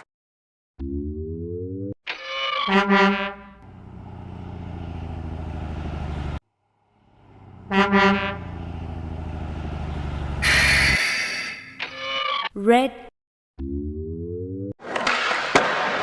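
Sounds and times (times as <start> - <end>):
truck horn honking: 2.7 - 3.8, 7.2 - 9.2, 10.2 - 11.6
truck engine rumbling: 3.4 - 11.8
loud burst of hiss: 10.4 - 11.5.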